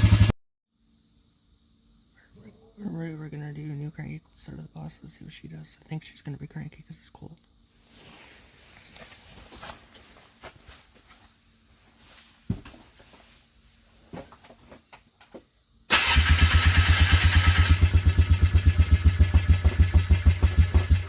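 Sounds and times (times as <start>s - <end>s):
engine cranking on starter: 0.0s - 0.3s, 15.9s - 21.0s.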